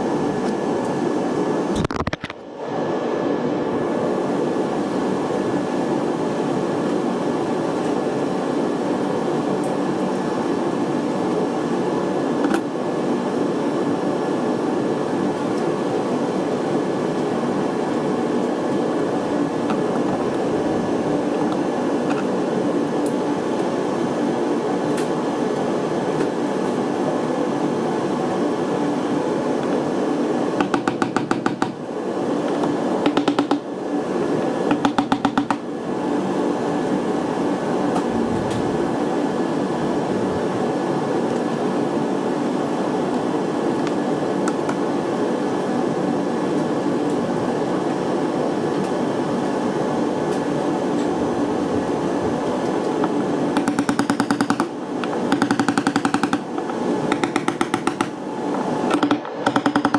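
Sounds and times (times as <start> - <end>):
machine drone with whine: 0.0 - 45.9, 46.6 - 59.9
rapid clicks: 53.0 - 58.2, 58.9 - 59.9.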